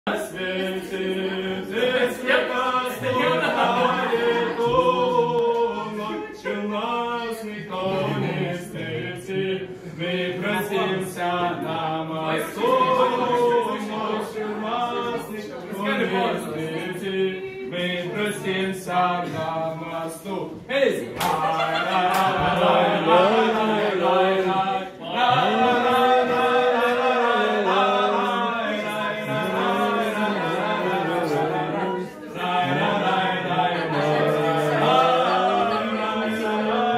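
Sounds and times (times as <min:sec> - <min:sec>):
group singing a cappella: 0:00.0 - 0:36.9.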